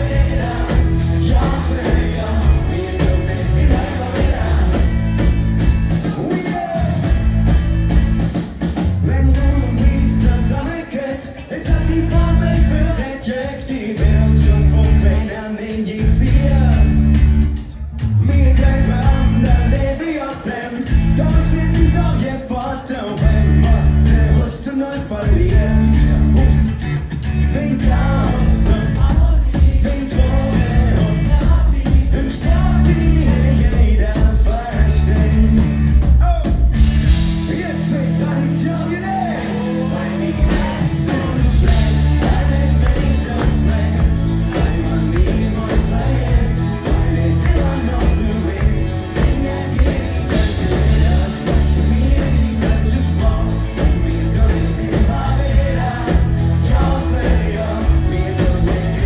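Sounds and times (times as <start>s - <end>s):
person singing: 0.0s - 5.3s, 37.4s - 59.0s
live rock band: 0.0s - 59.0s.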